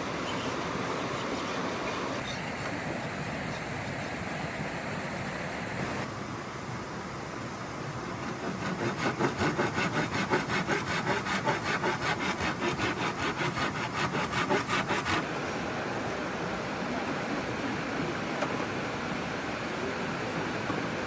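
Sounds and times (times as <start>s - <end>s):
rushing water: 0.0s - 8.8s, 11.3s - 21.0s
hand saw cutting wood: 8.2s - 15.3s.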